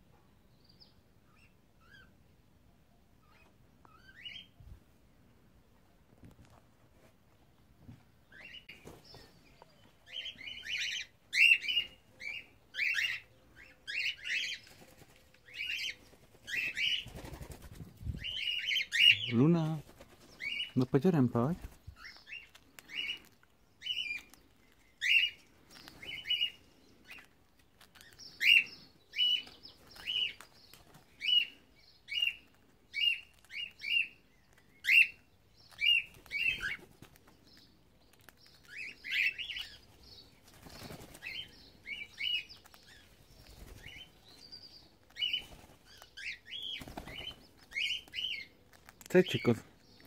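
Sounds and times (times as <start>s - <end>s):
wings fluttering: 8.6s - 9.4s, 14.4s - 20.8s, 21.5s - 23.4s, 24.1s - 28.6s, 29.3s - 31.5s, 35.7s - 37.5s, 38.2s - 49.1s
cockatiels chirping: 10.1s - 14.6s, 25.0s - 27.2s, 27.8s - 30.6s, 31.2s - 36.8s, 38.4s - 40.2s, 41.2s - 48.5s.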